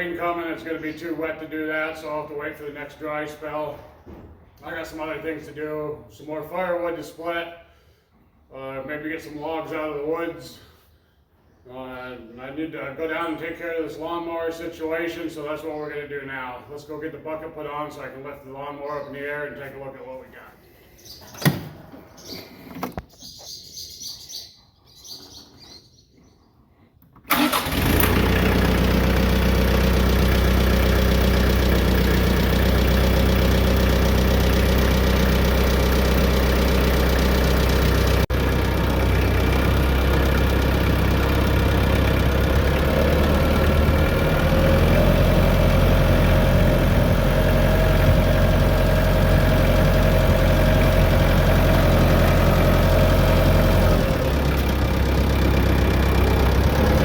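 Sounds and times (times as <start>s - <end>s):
tractor engine idling: 27.3s - 57.0s.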